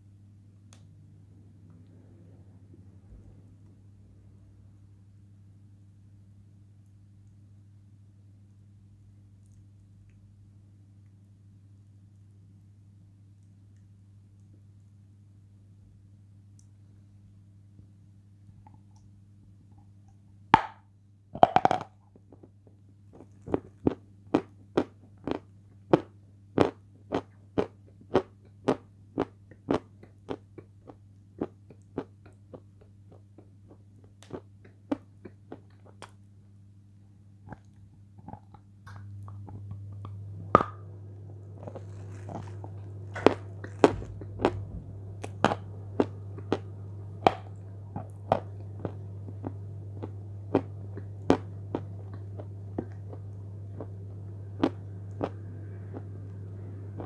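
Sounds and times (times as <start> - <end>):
low hum: 36.2 - 57.0
chalk crunching in mouth: 41.5 - 44.6.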